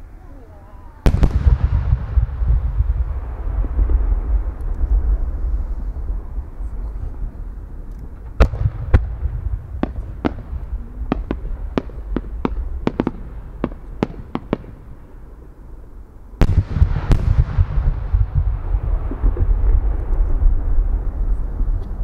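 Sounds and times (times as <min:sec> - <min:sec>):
firework shells booming: 0:01.0 - 0:05.5, 0:08.1 - 0:15.2, 0:16.4 - 0:20.9
rumbling echo: 0:01.0 - 0:22.0
firework cracks: 0:01.1 - 0:06.1, 0:07.8 - 0:15.2, 0:16.4 - 0:22.0.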